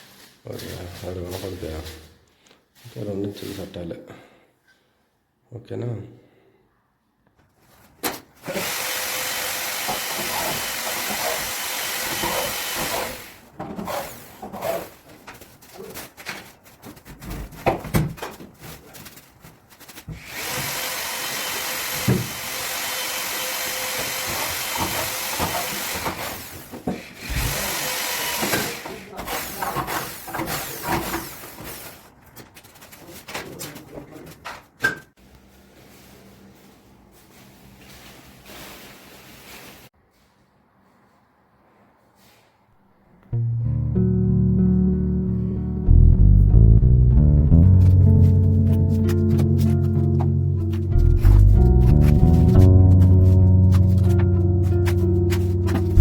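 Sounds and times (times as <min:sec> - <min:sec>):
power tool working wood: 0:08.5 - 0:13.3, 0:20.2 - 0:26.5, 0:27.2 - 0:29.5
knocks and handling noises: 0:13.5 - 0:20.2, 0:47.6 - 0:56.0.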